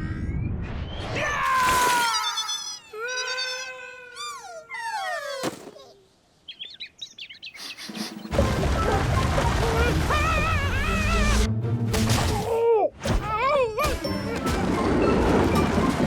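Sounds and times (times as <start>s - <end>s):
faint high chirps: 2.1s - 4.0s
squeaky gliding cartoon whines: 2.1s - 6.0s.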